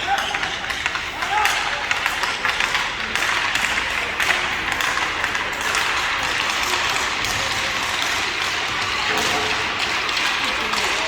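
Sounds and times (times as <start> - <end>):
crowd noise: 0.0 - 11.0.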